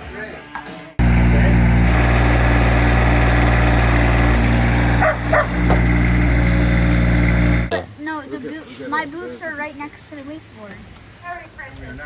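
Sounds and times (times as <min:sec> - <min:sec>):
motorboat engine running: 0:01.0 - 0:07.7.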